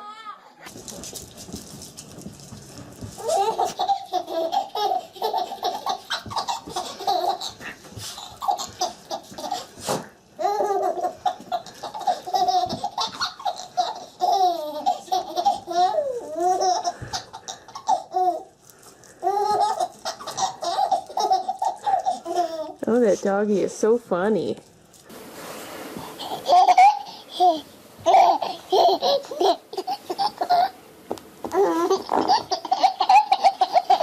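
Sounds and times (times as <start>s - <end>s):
young child laughing: 26.2s - 30.8s.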